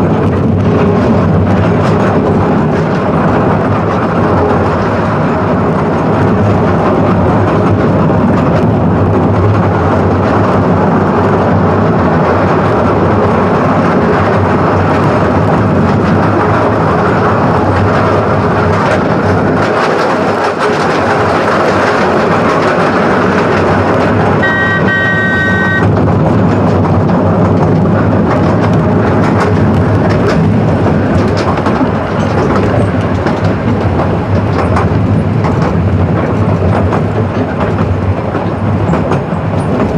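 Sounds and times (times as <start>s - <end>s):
train wheels clattering on track: 0.0s - 39.9s
train horn blast: 24.4s - 25.9s.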